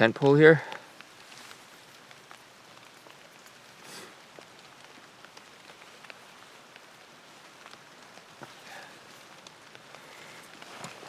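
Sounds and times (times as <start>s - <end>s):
light rain falling: 0.0s - 11.0s
raindrops ticking: 0.0s - 11.0s
brief rustle: 10.2s - 11.0s.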